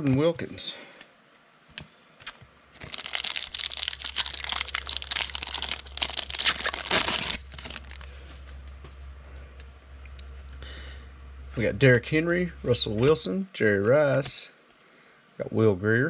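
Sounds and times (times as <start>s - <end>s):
foil wrapper crinkling: 2.8s - 8.2s.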